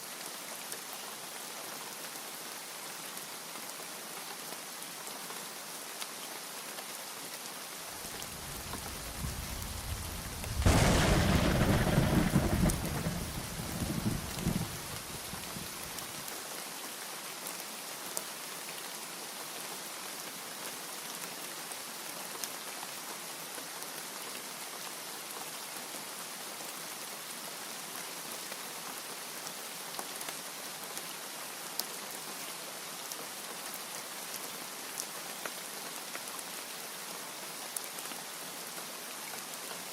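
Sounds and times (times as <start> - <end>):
steady rain: 0.0 - 39.9
thunder rumbling and clapping: 8.4 - 15.5.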